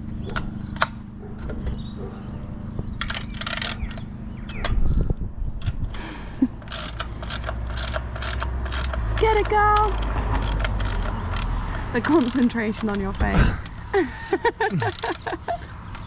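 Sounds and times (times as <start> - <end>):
metal clicks and clinks: 3.0 - 4.8, 6.6 - 16.0.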